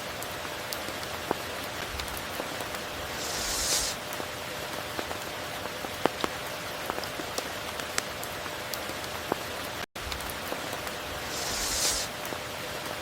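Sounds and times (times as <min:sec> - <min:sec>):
heavy rain hiss: 0:01.8 - 0:04.6, 0:10.2 - 0:13.0.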